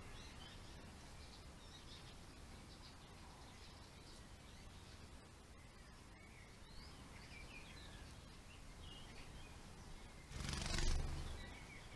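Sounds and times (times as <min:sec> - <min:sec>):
birds chirping: 0:00.0 - 0:11.9
quiet steady background noise: 0:00.0 - 0:11.9.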